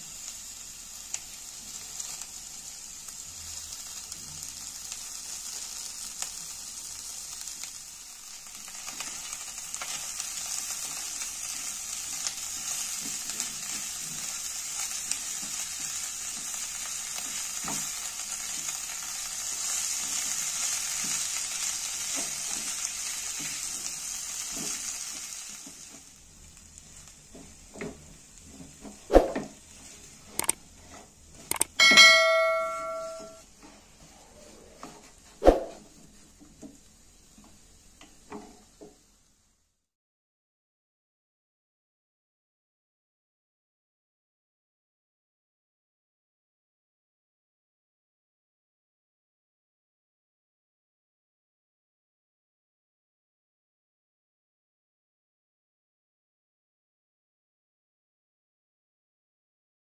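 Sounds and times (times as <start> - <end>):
food sizzling in a frying pan: 0.0 - 39.9
wooden spatula scraping a pan: 8.7 - 26.2, 26.8 - 31.5, 33.1 - 39.1.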